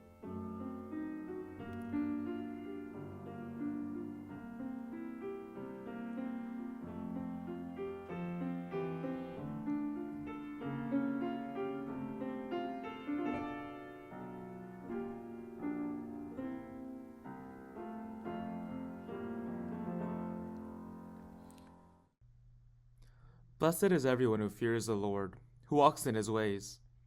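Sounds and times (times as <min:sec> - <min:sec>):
slow gentle piano chords: 0:00.0 - 0:22.1.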